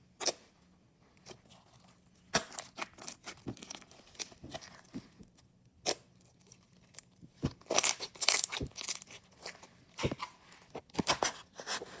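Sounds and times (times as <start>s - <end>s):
sticky slime crackles and pops: 5.8s - 9.2s.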